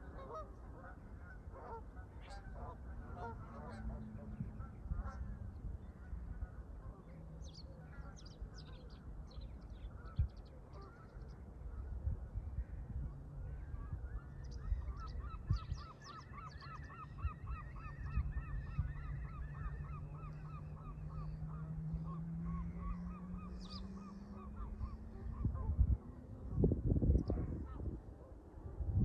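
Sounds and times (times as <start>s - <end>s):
geese honking: 0.0s - 7.1s, 14.7s - 26.4s.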